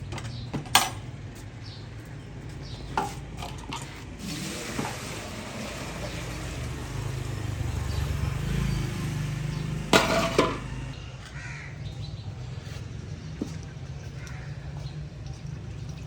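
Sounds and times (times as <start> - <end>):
crow cawing: 11.2 - 11.8.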